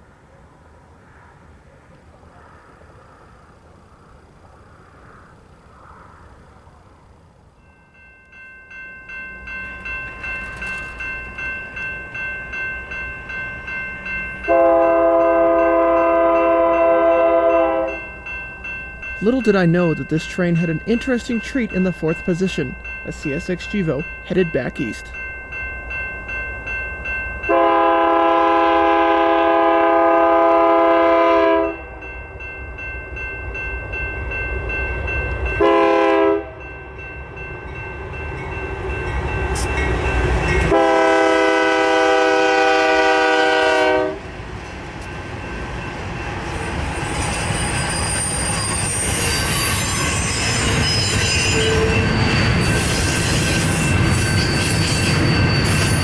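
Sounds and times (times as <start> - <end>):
train rumbling past: 0.0 - 56.0
locomotive air horn: 14.5 - 18.0, 27.5 - 31.8, 35.6 - 36.6, 40.7 - 44.2
steel wheels squealing on rails: 46.5 - 56.0.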